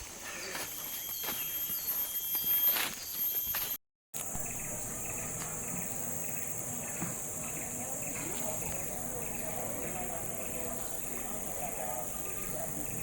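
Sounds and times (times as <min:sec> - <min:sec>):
insects droning high-pitched: 0:00.0 - 0:13.0.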